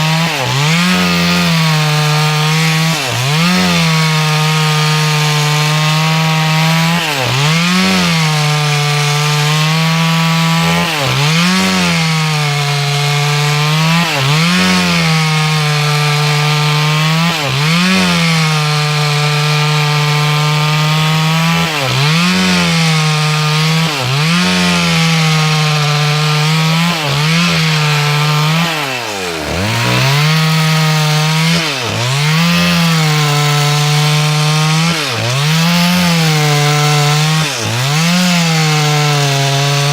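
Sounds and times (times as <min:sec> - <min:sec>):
chainsaw ripping a log: 0:00.0 - 0:39.9.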